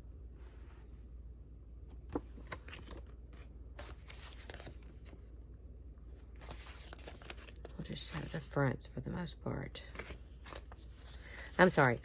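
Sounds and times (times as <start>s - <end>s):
paper cards rustling: 1.9s - 5.3s, 6.2s - 8.5s, 9.9s - 12.0s.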